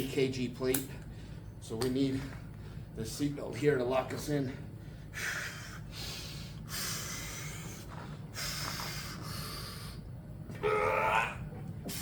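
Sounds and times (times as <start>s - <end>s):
man breathing hard: 4.6s - 10.1s.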